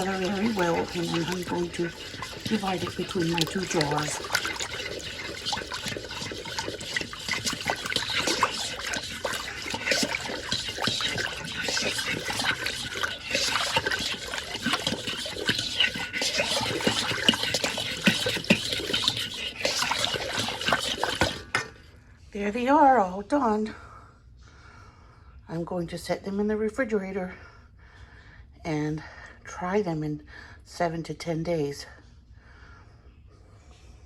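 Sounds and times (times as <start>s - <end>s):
liquid pouring into glass jars: 0.0s - 21.8s.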